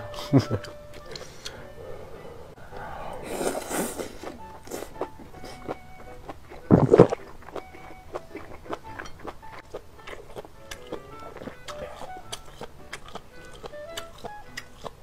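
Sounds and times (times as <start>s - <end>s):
wet chewing with mouth clicks: 0.5s - 1.6s, 2.7s - 15.0s
deep mouth noise: 1.1s - 5.8s, 6.5s - 8.6s, 10.8s - 15.0s
noodles slurped: 3.2s - 5.9s, 6.5s - 7.7s, 10.2s - 15.0s.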